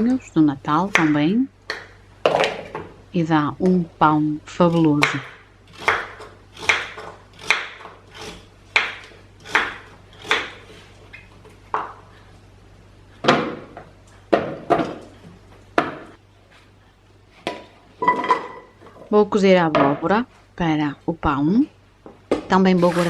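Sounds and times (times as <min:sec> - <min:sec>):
knife chopping on wooden board: 0:04.8 - 0:10.8.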